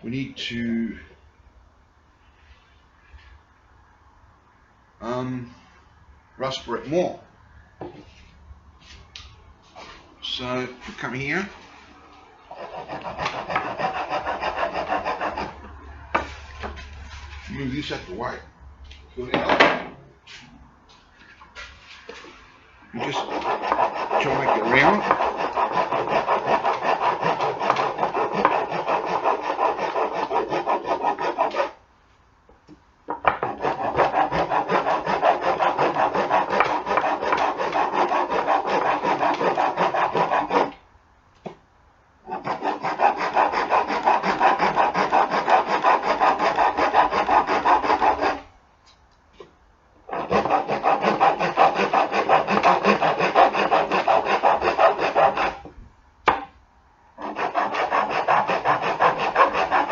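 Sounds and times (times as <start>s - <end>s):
hand rasp scraping wood: 12.5s - 16.6s, 23.0s - 31.8s, 33.4s - 40.8s, 42.3s - 48.4s, 50.1s - 55.6s, 57.2s - 59.9s.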